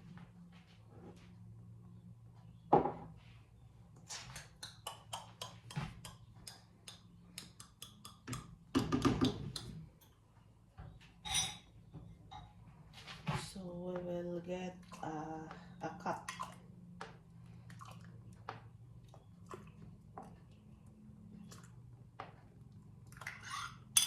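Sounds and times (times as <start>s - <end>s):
kitchenware clinking and knocking: 11.2s - 12.6s.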